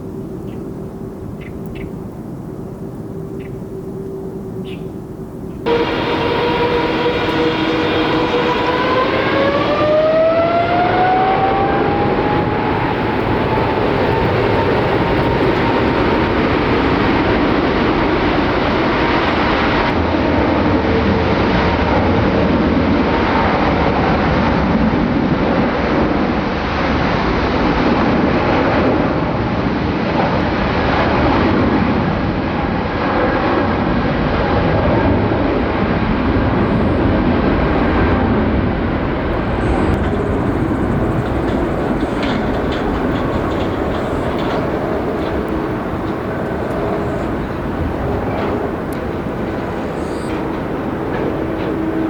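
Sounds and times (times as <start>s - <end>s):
jet engines spooling up: 5.6s - 20.0s, 34.2s - 52.0s.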